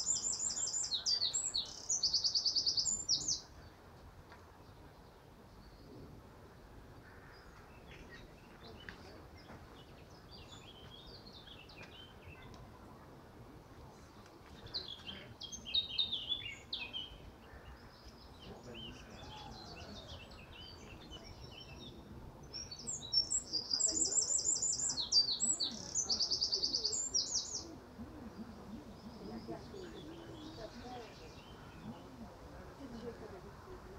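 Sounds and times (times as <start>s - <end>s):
wild birds singing: 0.0s - 3.9s, 4.6s - 12.6s, 13.7s - 33.9s.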